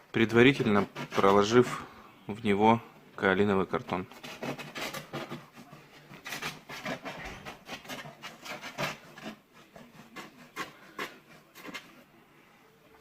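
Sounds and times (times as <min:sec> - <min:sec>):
metal pipe scraping and rubbing: 0:00.5 - 0:01.8, 0:04.0 - 0:12.0.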